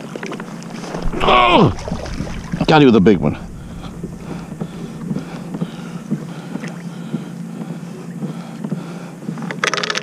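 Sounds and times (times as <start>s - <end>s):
steady low hum: 0.2s - 9.6s
wind on microphone: 0.4s - 6.9s.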